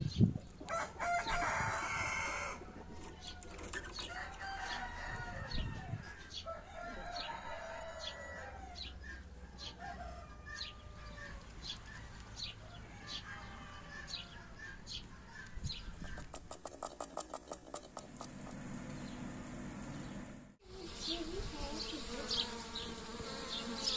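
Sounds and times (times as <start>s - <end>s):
hens clucking: 0.4s - 4.3s, 12.9s - 18.6s
rooster crowing: 0.7s - 11.5s, 12.6s - 14.7s
small birds chirping: 10.5s - 19.3s, 19.9s - 23.9s.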